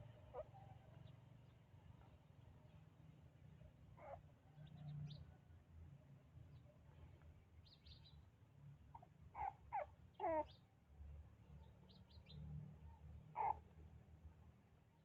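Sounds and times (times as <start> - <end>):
baby monkey squeaky calls: 9.4 - 10.5, 13.4 - 13.6.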